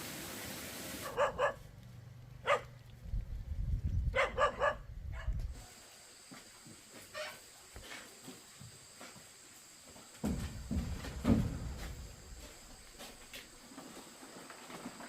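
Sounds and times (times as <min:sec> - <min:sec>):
dog barking: 0:01.0 - 0:01.6, 0:02.4 - 0:02.7, 0:04.1 - 0:05.4.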